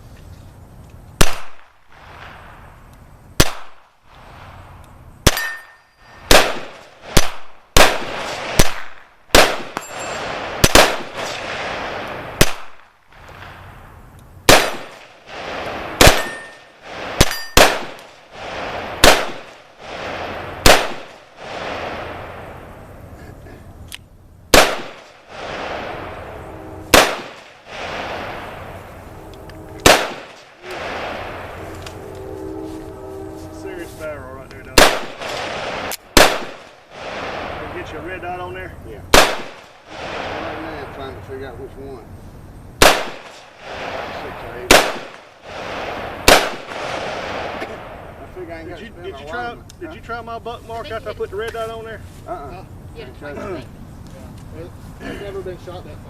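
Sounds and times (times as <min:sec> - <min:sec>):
gunshots: 0:01.2 - 0:02.7, 0:03.4 - 0:04.6, 0:05.2 - 0:13.8, 0:14.5 - 0:22.8, 0:24.5 - 0:31.9, 0:34.6 - 0:38.2, 0:39.1 - 0:41.2, 0:42.8 - 0:48.3
steel target ringing: 0:05.3 - 0:06.3, 0:09.7 - 0:10.4, 0:15.8 - 0:18.0.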